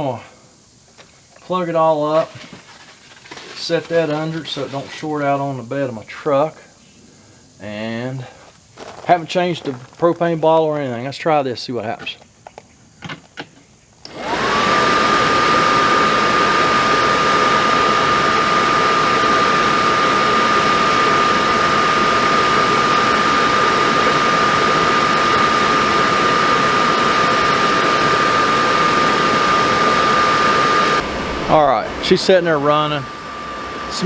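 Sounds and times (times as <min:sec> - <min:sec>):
furnace blower motor whining: 0:02.2 - 0:05.1, 0:14.0 - 0:34.0
rushing air: 0:14.1 - 0:34.0.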